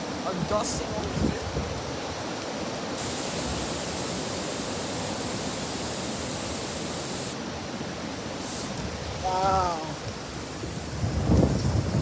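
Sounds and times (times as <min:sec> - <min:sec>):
strong gusting wind: 0:00.0 - 0:12.0
wind buffeting microphone: 0:00.0 - 0:12.0
bright high hiss: 0:03.0 - 0:07.4.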